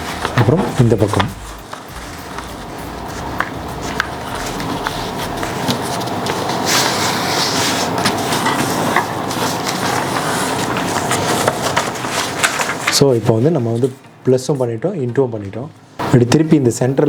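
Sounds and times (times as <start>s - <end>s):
steady background noise: 0.0s - 17.0s
paper rustling and crinkling: 4.3s - 14.0s.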